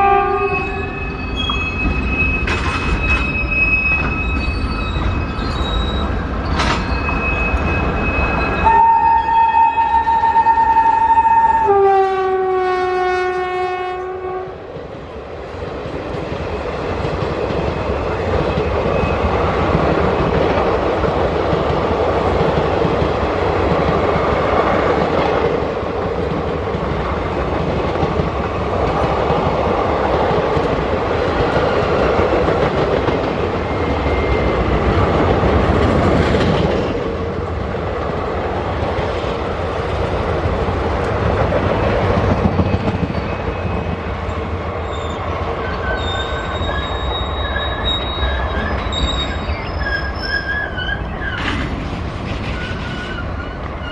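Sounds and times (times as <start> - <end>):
locomotive horn: 0.0 - 1.0, 8.6 - 14.6
train rumbling past: 0.0 - 53.9
wheels clacking over rail joints: 1.4 - 8.7, 14.8 - 53.9.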